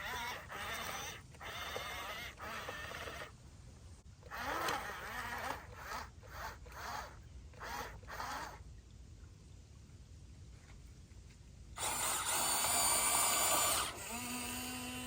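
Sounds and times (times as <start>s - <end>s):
small electric motors whirring: 0.0s - 3.4s, 4.2s - 8.6s, 11.8s - 15.0s.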